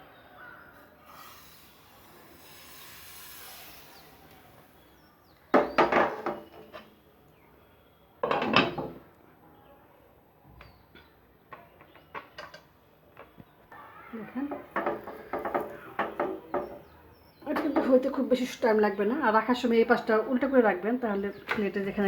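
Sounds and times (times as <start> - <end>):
soft hiss: 1.0 - 5.1
metal utensils clattering on cookware: 8.2 - 9.0.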